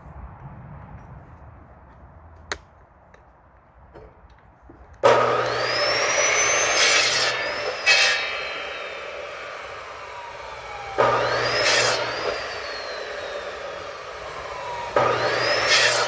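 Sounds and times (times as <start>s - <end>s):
electric saw motor whine: 5.0s - 16.0s
saw rasping through firewood: 5.0s - 16.0s.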